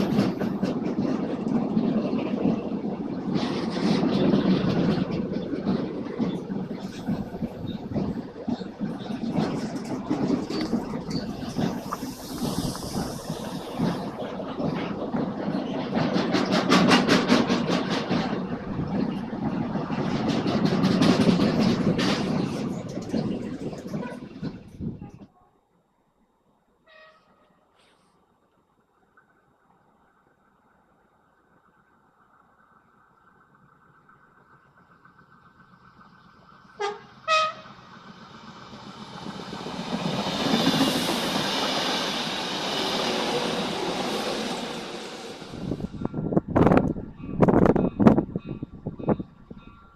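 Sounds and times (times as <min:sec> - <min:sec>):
train wheels clattering on rails: 0:00.0 - 0:25.3, 0:32.9 - 0:49.9
train rumble: 0:00.0 - 0:25.4, 0:28.6 - 0:49.9
train horn blasts: 0:26.9 - 0:27.6, 0:36.8 - 0:37.8.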